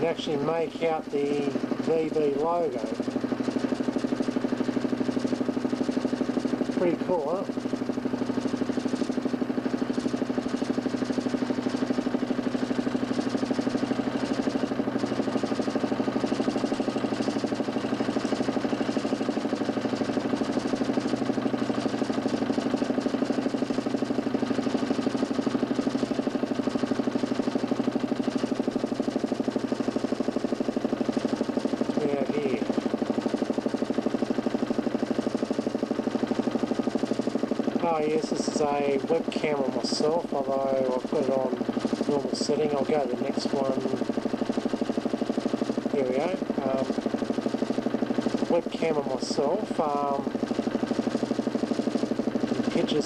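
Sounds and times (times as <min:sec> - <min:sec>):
motor spinning disc with flutter: 0:00.0 - 0:53.0.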